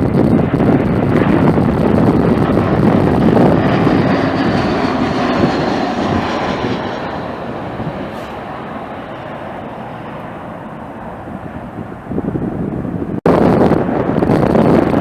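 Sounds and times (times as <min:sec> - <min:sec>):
jet airliner passing: 0:00.0 - 0:15.0.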